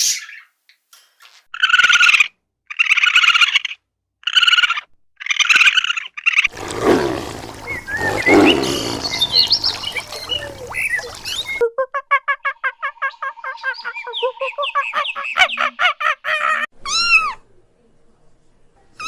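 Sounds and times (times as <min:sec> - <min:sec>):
birds chirping faintly: 0:05.5 - 0:11.6
large animal deep roar: 0:06.5 - 0:10.6.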